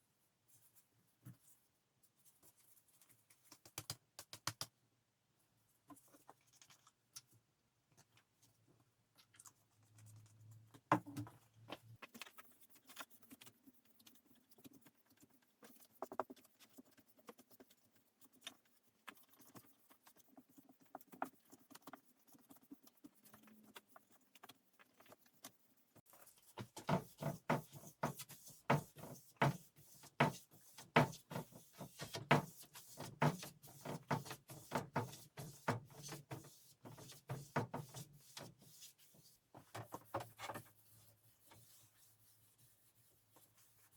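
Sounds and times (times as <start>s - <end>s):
rubbing strokes on wood: 26.9s - 39.4s.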